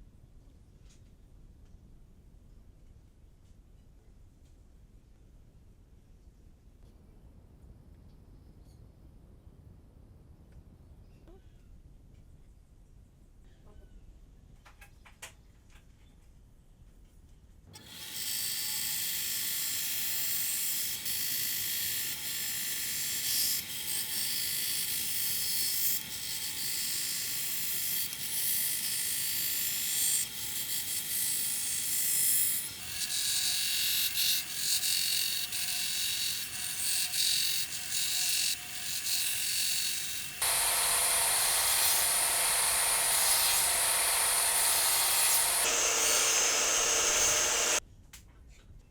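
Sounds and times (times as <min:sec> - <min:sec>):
power tool running on wood: 0:17.8 - 0:47.8.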